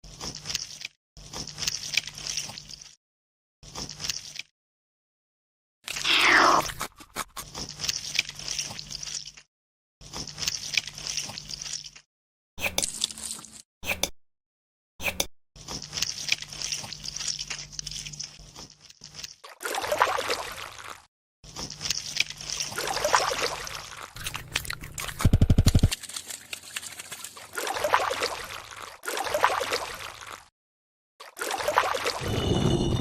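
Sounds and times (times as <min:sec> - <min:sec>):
liquid noises: 0:15.6 - 0:30.5.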